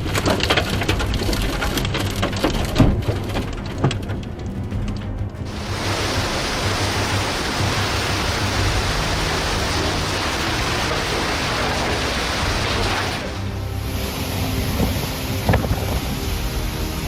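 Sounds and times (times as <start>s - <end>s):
low background music: 0.0s - 17.0s
dense rushing hiss: 5.5s - 17.0s.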